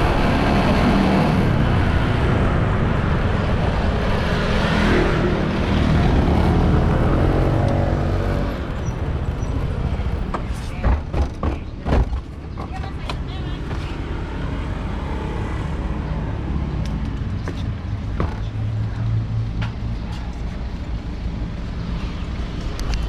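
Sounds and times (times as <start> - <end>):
wind rush on microphone: 0.0 - 12.2.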